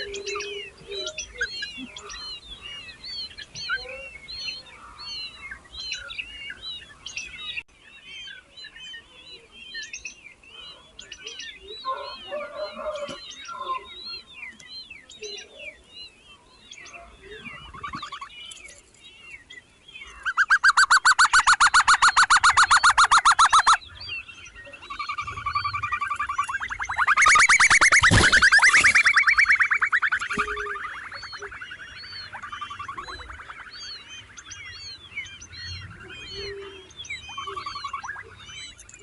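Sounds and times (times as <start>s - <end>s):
baby birds chirping: 0.0s - 39.0s
loud rapid pulsing bird call: 20.4s - 23.8s, 24.9s - 36.4s.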